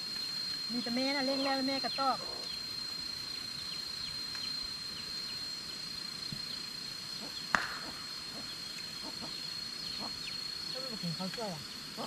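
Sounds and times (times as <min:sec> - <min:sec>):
steady high-pitched hum: 0:00.0 - 0:12.0
birds chirping: 0:06.4 - 0:12.0
sharp knock: 0:07.5 - 0:07.9.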